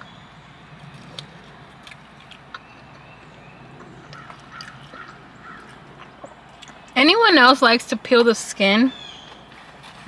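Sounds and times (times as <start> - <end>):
chewing crunches: 0.0 - 7.0, 9.0 - 10.0.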